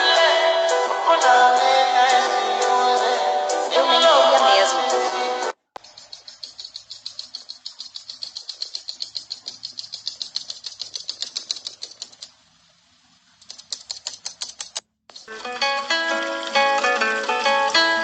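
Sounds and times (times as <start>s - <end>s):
rapid clicking: 5.8s - 12.4s, 13.4s - 18.0s.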